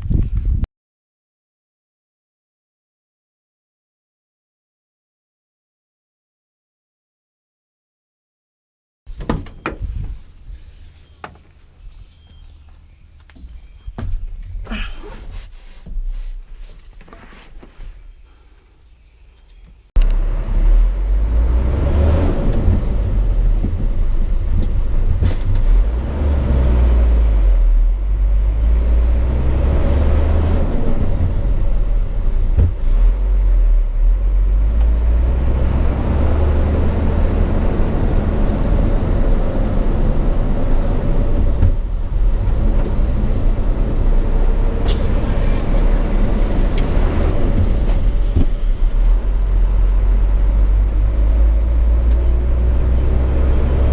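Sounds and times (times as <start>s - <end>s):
road noise: 9.1s - 53.9s
truck diesel engine drone: 20.0s - 53.9s.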